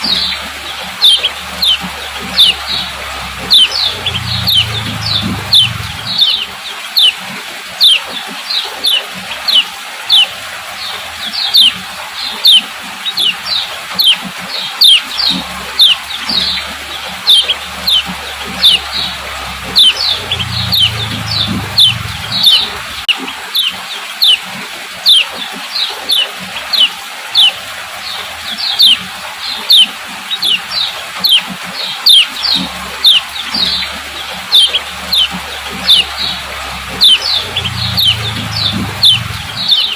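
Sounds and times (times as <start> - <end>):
bird calling with sliding high notes: 0.0 - 7.2, 14.8 - 23.1, 33.0 - 39.9.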